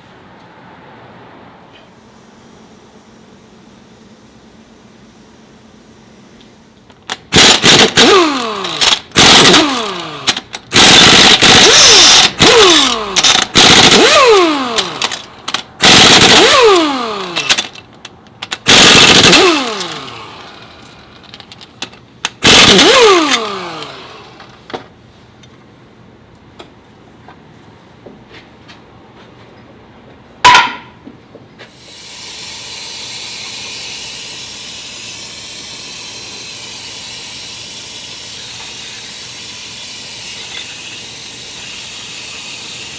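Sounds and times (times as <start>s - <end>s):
pneumatic impact wrench bursts: 1.9s - 24.7s, 31.6s - 42.9s.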